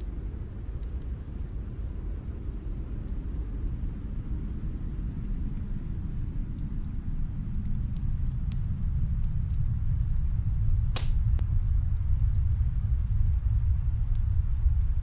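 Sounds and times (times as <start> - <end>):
wood fire crackling: 0.0 - 15.0
sharp pops from fire: 10.8 - 11.5.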